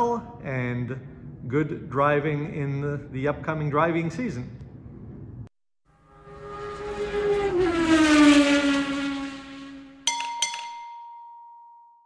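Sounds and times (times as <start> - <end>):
car engine passing by: 6.0 - 10.0
metallic clinks: 10.1 - 12.0
ringing chime: 10.1 - 12.0.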